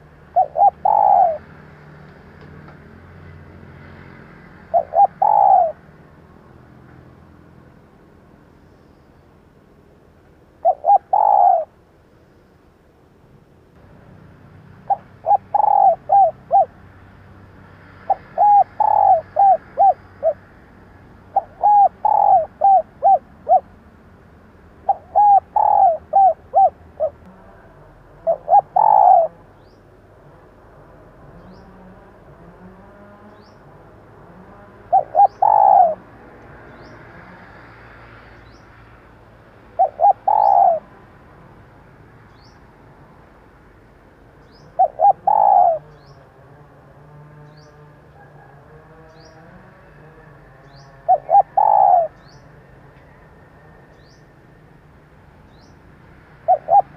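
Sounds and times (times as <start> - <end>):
dove cooing: 0.0 - 1.7, 4.6 - 6.0, 10.6 - 11.8, 14.8 - 16.8, 18.0 - 20.5, 21.2 - 23.8, 24.8 - 29.6, 34.3 - 36.2, 39.7 - 41.0, 44.7 - 46.4, 47.6 - 53.8, 56.4 - 56.9.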